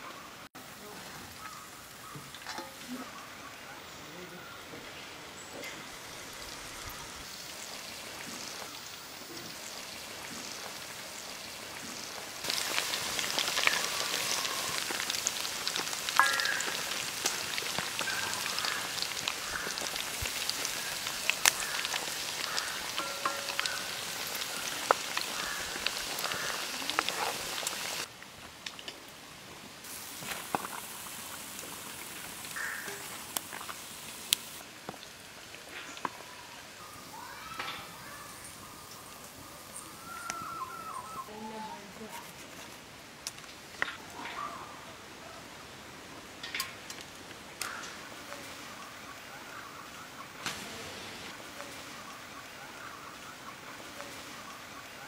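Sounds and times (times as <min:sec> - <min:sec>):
chicken frying in hot oil: 0:05.7 - 0:28.1, 0:29.8 - 0:40.4, 0:47.6 - 0:55.0.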